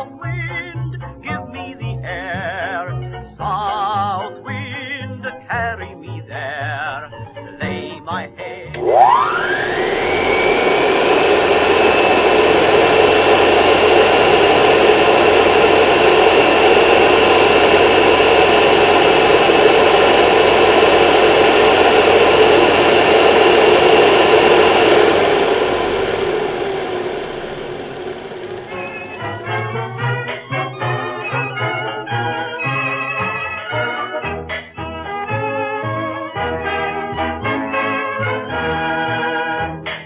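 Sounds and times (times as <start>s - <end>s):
vacuum cleaner motor whirring: 7.0s - 8.0s, 8.7s - 32.7s.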